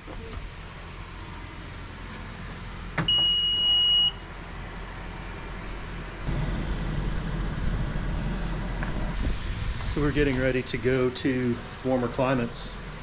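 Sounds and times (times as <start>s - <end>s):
low engine rumble: 0.0s - 13.0s
car electronic beep: 3.1s - 4.2s.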